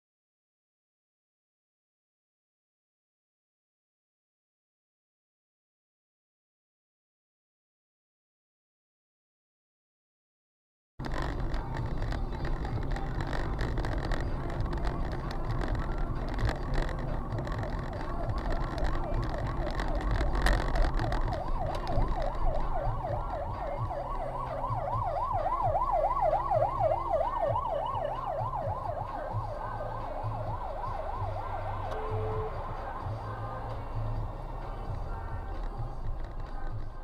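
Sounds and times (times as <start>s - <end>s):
vehicle and road rumble: 11.0s - 37.0s
emergency siren yelping: 12.5s - 35.9s.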